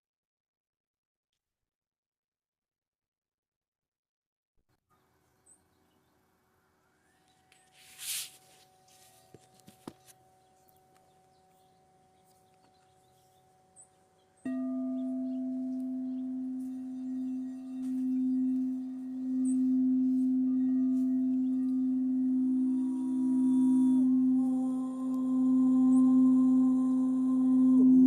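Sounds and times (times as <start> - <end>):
higher-pitched singing bowl: 6.8 - 28.0
singing bowl ringing low tone: 6.8 - 28.0.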